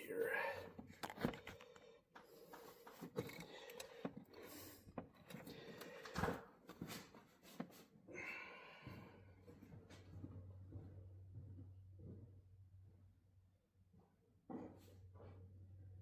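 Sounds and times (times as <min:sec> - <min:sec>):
hand tools clicking and knocking: 0:02.6 - 0:06.2.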